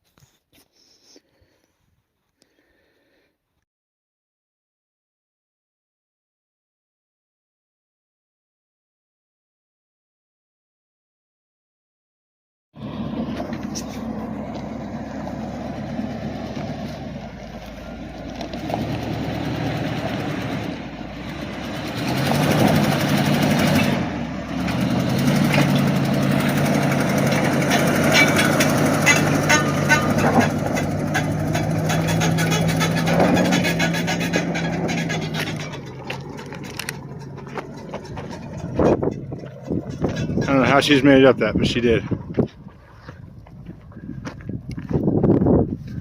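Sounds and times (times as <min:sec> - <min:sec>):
engine pulling under load: 0:12.8 - 0:46.0
knocks and rattles of vehicle: 0:12.8 - 0:46.0.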